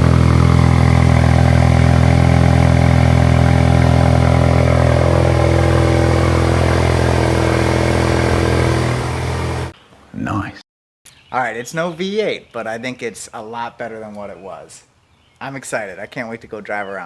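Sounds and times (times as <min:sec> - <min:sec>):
car engine idling loud exhaust: 0:00.0 - 0:09.7.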